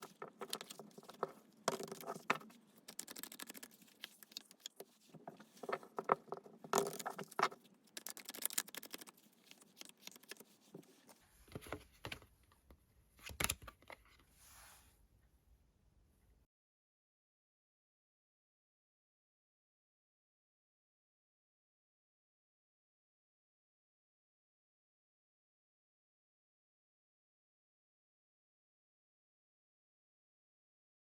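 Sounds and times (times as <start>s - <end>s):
cards being shuffled: 0.0s - 12.2s.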